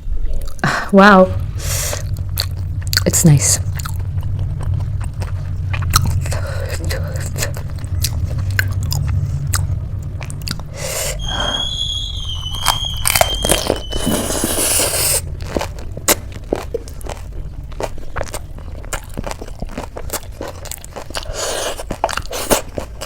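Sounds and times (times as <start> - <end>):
wavering high whistling tone: 1.3 - 15.5
crunchy food being chewed: 12.6 - 23.0.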